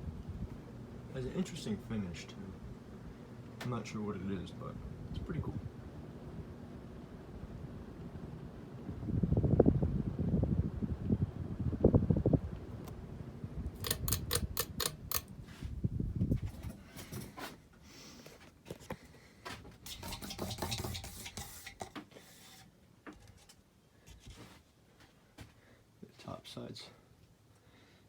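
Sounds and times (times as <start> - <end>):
ceiling fan air buffeting microphone: 0.0 - 28.0
sharp clicks and rustles: 13.8 - 15.3.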